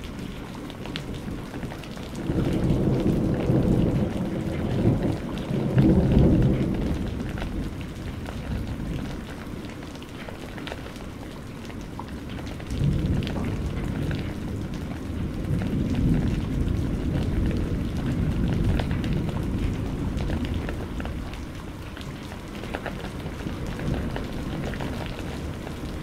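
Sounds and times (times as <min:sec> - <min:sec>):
steady rain: 0:00.0 - 0:26.0
rolling thunder: 0:02.1 - 0:09.3, 0:12.7 - 0:21.4, 0:22.9 - 0:26.0.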